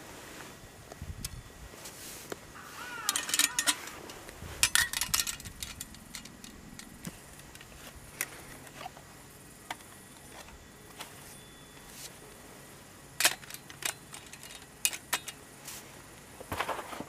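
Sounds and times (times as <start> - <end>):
metal clinking and clattering: 3.0 - 7.7, 13.2 - 15.4.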